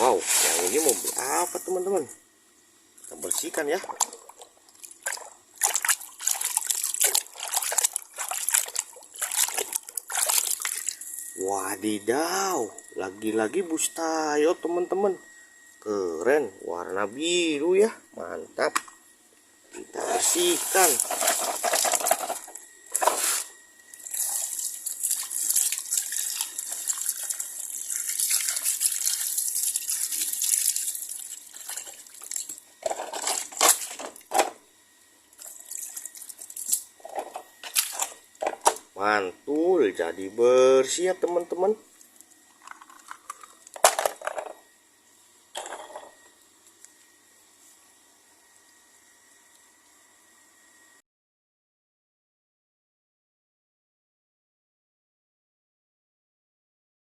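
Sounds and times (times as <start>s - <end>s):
water trickling and splashing: 0.0s - 1.6s, 3.0s - 11.2s, 24.0s - 32.6s, 35.4s - 36.9s.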